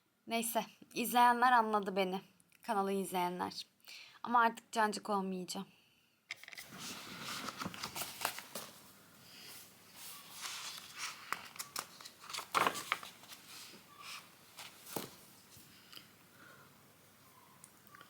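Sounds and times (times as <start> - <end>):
packaging clicks and crinkling: 6.3 - 16.1.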